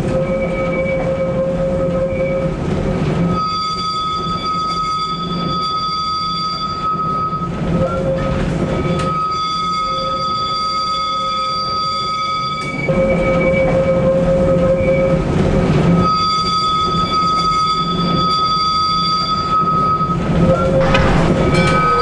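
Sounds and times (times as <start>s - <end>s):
electric tram rumbling: 20.7s - 22.0s
high-pitched tram tones: 20.8s - 22.0s.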